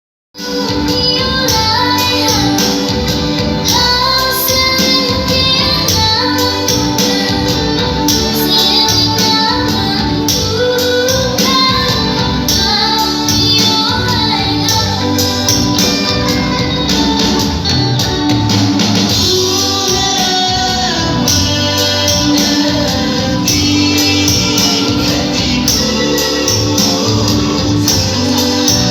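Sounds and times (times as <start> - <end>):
woman singing: 0.4 - 28.9
upbeat dance music: 11.2 - 28.9.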